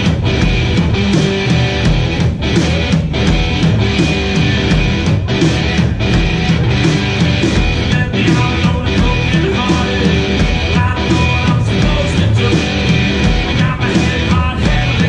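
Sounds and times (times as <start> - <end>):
rock blues band playing: 0.0 - 15.0.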